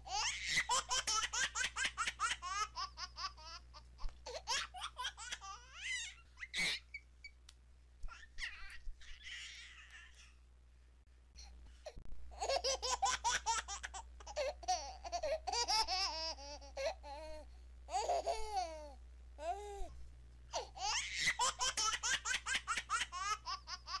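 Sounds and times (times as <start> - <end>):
baby laughing: 0.1 - 7.0, 8.1 - 10.3, 12.4 - 17.3, 17.9 - 19.6, 20.6 - 24.0.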